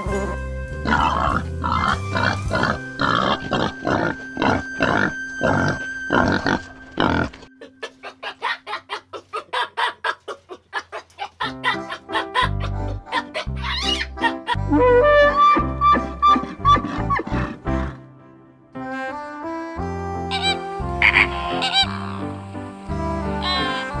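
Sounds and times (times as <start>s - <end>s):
background music: 0.0s - 9.4s, 11.4s - 24.0s
wild boar grunting: 0.1s - 7.8s, 16.4s - 18.0s.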